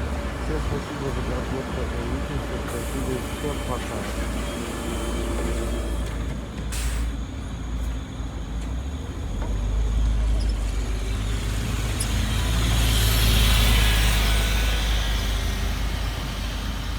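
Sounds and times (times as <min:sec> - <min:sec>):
bus engine rumble: 0:00.0 - 0:16.9
traffic noise: 0:00.0 - 0:16.9.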